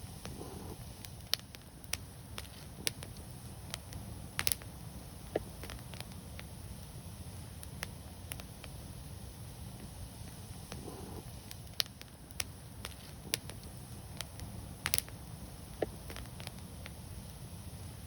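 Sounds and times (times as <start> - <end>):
flames rumbling: 0.0 - 18.0
wood fire crackling: 0.0 - 18.0.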